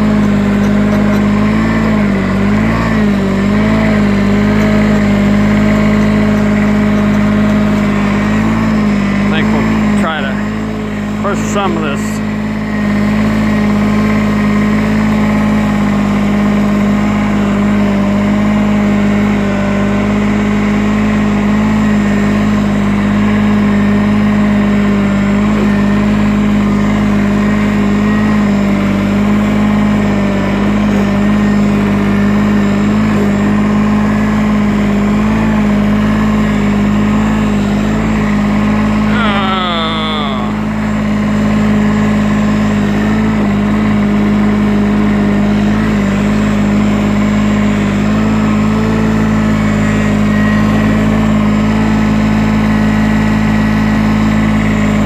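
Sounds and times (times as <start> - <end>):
diesel tractor engine running: 0.0 - 55.0.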